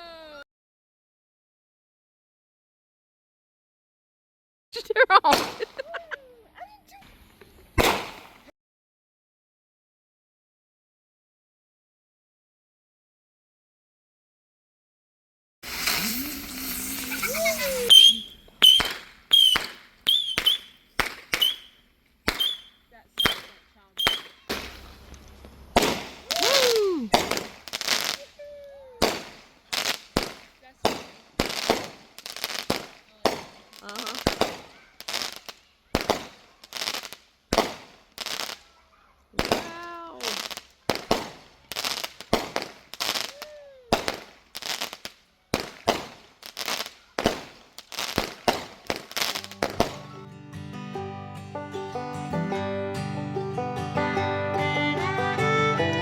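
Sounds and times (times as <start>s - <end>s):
fireworks crackling hiss: 5.1s - 6.2s, 7.0s - 8.5s, 15.6s - 38.7s, 39.4s - 50.3s
fireworks sharp bangs: 5.2s - 6.0s, 7.8s - 8.5s, 15.6s - 28.3s, 29.0s - 38.8s, 39.4s - 50.3s
music: 49.4s - 56.0s.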